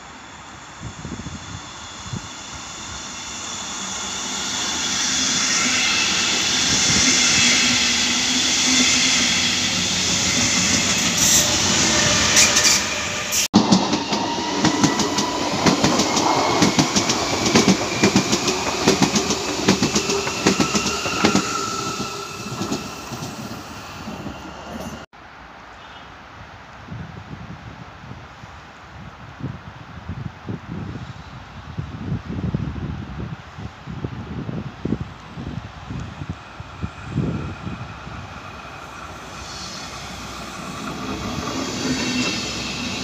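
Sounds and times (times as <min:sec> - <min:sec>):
electric traction whine: 0:00.0 - 0:25.1
train rolling noise and hiss: 0:00.0 - 0:43.0.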